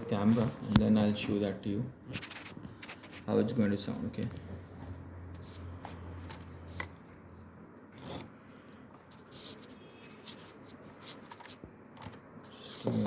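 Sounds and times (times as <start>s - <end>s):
handling scrapes and taps: 4.3s - 13.0s.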